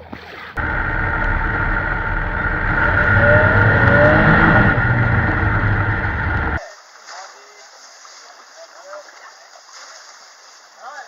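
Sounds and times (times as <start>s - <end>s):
faint rising whine: 0.6s - 6.6s
motor running loudly: 0.6s - 6.6s.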